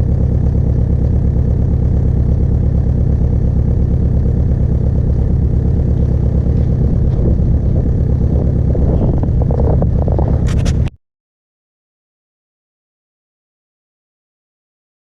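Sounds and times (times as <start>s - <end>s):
diesel engine idling: 0.0s - 10.9s.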